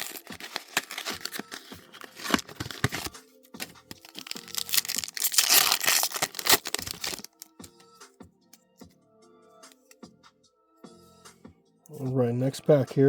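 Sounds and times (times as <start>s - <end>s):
foil wrapper crinkling: 0.0s - 7.6s
foil wrapper tearing: 0.0s - 7.6s.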